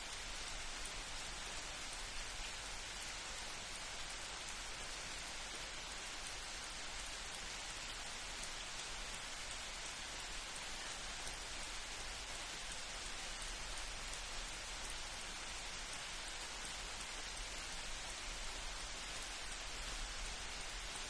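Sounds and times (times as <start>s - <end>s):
light rain falling: 0.0s - 21.0s.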